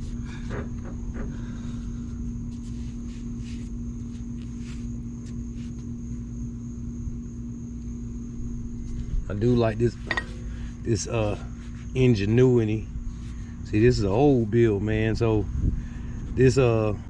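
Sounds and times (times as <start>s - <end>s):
steady hum: 0.0s - 17.0s
rag wiping a coil spring: 2.5s - 5.8s, 9.8s - 12.4s.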